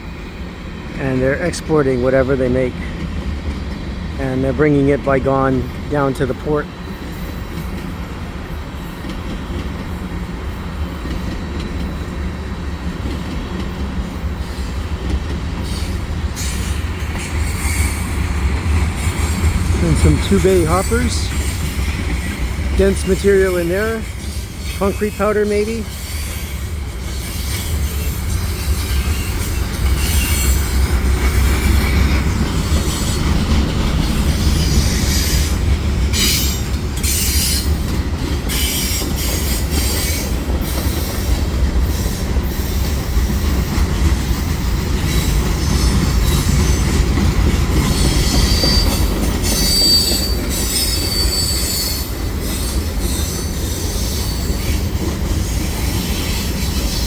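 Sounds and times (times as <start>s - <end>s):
train wheels rumbling on rail: 0.0s - 57.0s
high-pitched wheel squeal: 47.9s - 54.9s.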